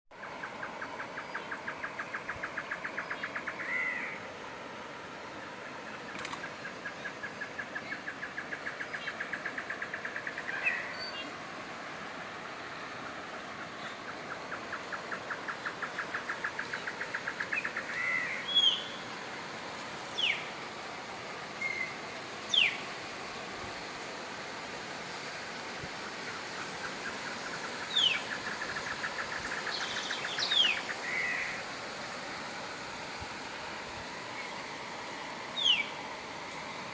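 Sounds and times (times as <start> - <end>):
steady hiss: 0.2 - 36.9
birds calling: 0.4 - 4.3, 13.4 - 19.1, 26.3 - 31.7, 35.6 - 36.0.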